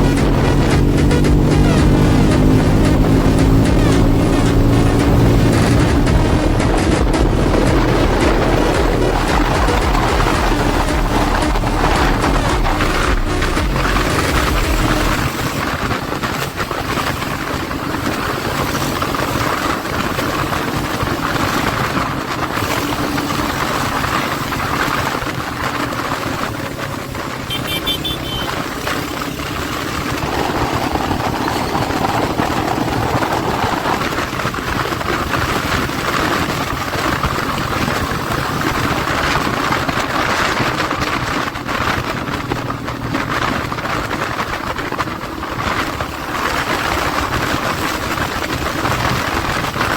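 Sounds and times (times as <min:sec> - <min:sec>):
continuous rushing noise: 0:00.0 - 0:49.9
motorcycle engine running: 0:00.0 - 0:49.9.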